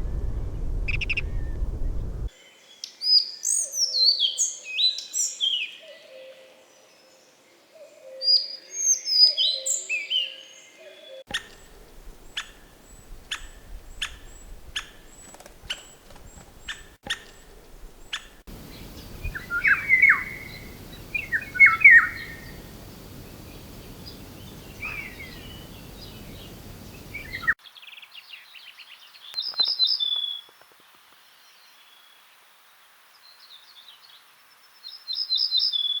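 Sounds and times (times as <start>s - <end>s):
bird sharp ticks: 11.3s - 27.6s
high thin bird chirps: 11.3s - 27.6s
background hiss: 11.3s - 28.2s
bird whistled phrases: 18.5s - 27.6s.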